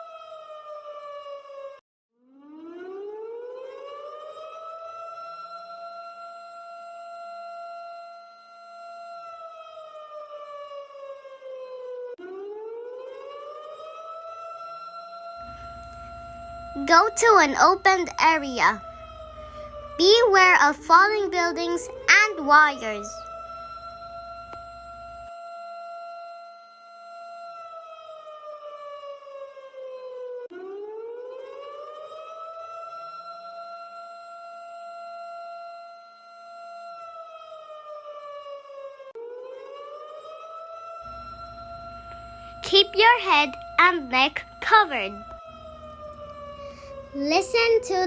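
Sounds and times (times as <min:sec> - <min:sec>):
siren wailing: 0:02.4 - 0:08.0, 0:15.2 - 0:33.7, 0:36.4 - 0:48.0.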